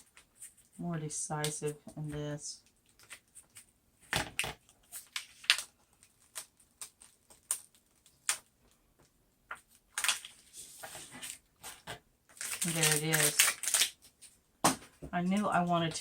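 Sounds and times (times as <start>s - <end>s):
adhesive vinyl crackling: 2.6s - 14.3s.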